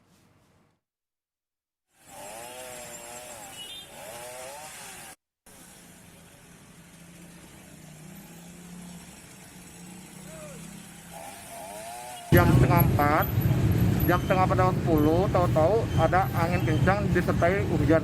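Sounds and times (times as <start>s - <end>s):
chainsaw cutting trees: 1.9s - 5.2s, 7.6s - 12.4s.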